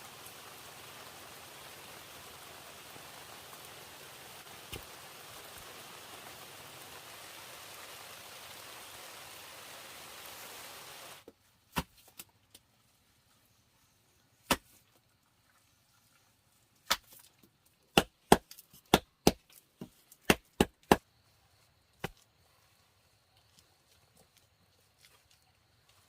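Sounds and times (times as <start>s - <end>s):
rain hiss: 0.0s - 11.3s
blade chopping wood: 14.4s - 14.8s, 17.9s - 21.0s.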